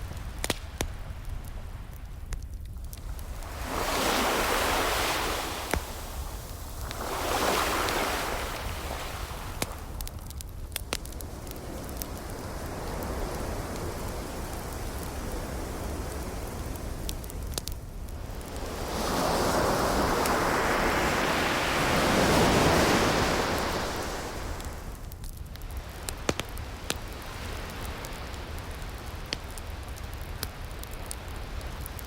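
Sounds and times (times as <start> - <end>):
wood fire crackling: 0.0 - 32.0
ocean waves washing in: 3.0 - 10.1, 10.9 - 25.0.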